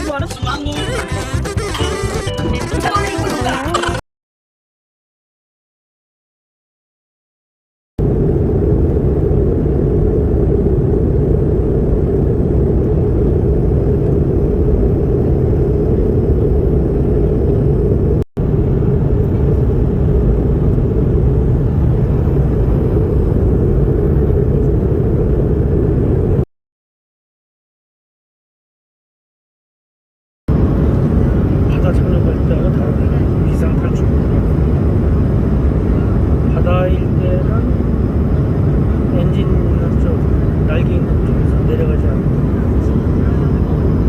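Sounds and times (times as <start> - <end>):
airliner cabin engine rumble: 8.0 - 26.5, 30.5 - 44.0.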